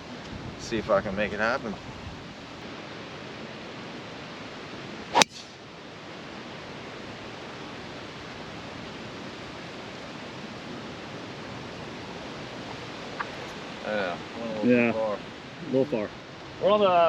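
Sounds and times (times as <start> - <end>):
wind noise on microphone: 0.0 - 13.8
golf club striking ball: 5.1 - 5.6.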